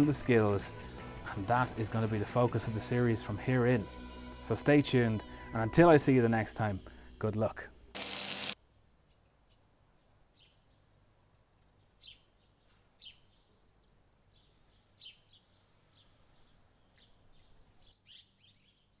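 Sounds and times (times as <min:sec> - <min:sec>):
quiet outdoor background noise: 0:05.8 - 0:19.0.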